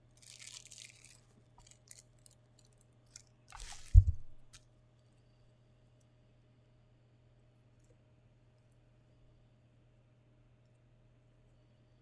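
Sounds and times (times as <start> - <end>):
plastic packaging crinkling: 0.2 - 4.6
dull thump: 3.6 - 4.5.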